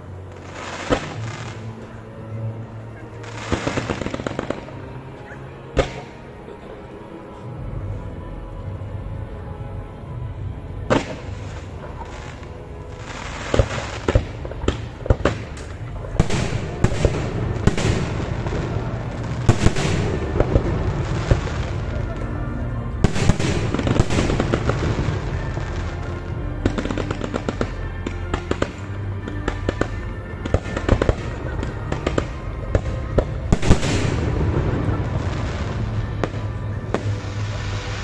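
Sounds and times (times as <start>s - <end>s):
fireworks banging and crackling: 0.0s - 2.0s, 3.1s - 5.1s, 5.7s - 6.2s, 10.8s - 38.0s.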